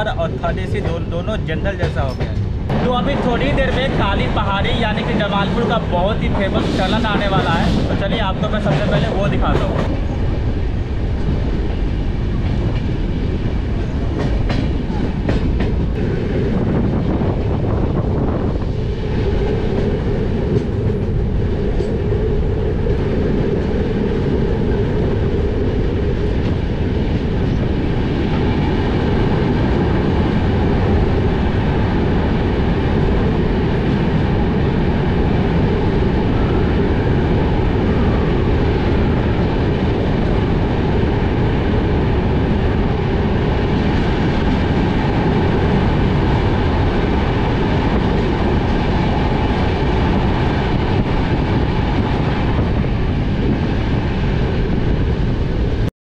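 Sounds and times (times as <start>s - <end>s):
train wheels rumbling on rails: 0.0s - 55.9s.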